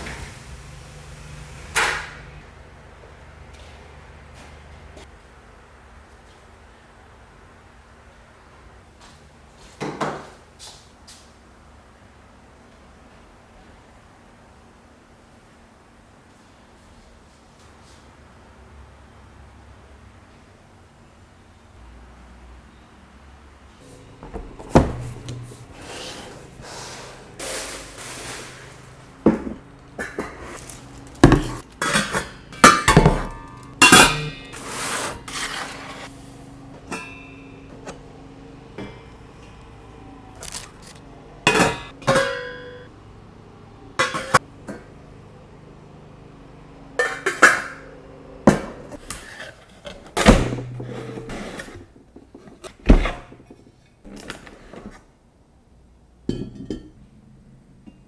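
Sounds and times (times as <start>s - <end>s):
dishes knocking and clinking: 24.2s - 25.4s, 29.3s - 30.5s, 31.2s - 34.4s, 56.3s - 57.0s
dishes clinking: 31.2s - 34.7s, 36.8s - 37.7s, 41.5s - 42.9s, 44.0s - 44.5s, 56.3s - 57.0s.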